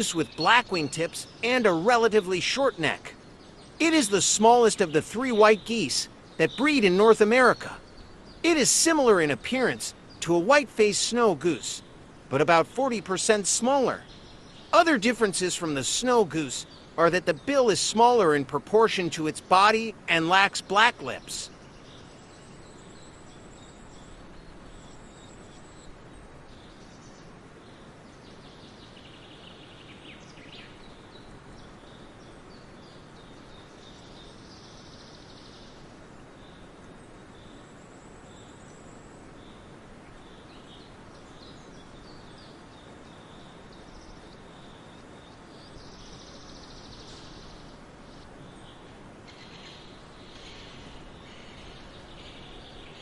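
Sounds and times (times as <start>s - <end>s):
high chirping trills: 0.0s - 21.6s
bird calls: 0.0s - 53.0s
outdoor background hiss: 0.0s - 53.0s.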